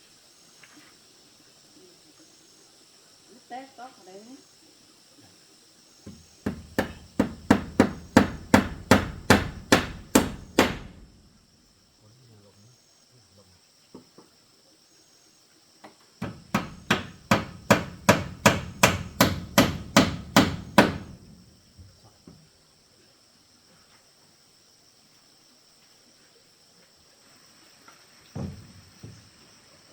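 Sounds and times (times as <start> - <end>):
hammer blows: 6.1 - 11.3, 16.2 - 21.4.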